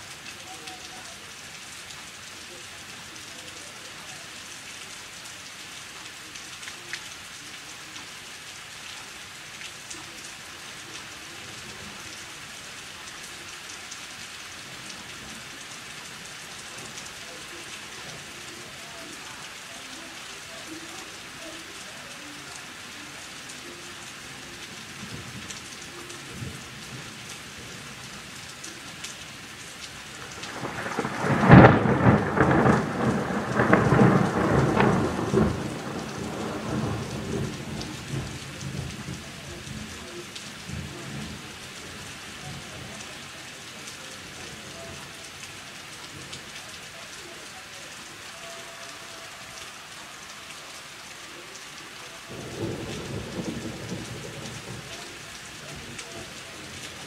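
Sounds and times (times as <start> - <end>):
steady rain falling: 0.0 - 57.0
thunder crack and rumble: 30.4 - 39.9.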